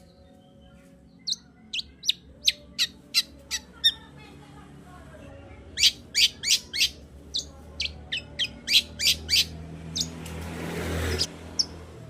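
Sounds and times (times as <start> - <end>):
bird chattering calls: 5.8 - 10.1.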